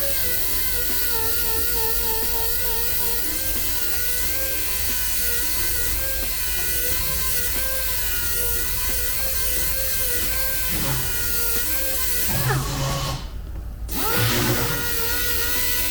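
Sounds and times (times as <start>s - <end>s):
rotary power tool running: 0.0s - 15.9s.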